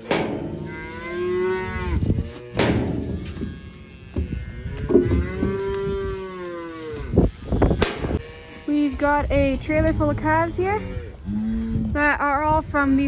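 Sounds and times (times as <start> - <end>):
sharp knocks: 0.0 - 1.1, 2.6 - 5.2, 7.8 - 8.2
calves mooing: 0.0 - 9.2.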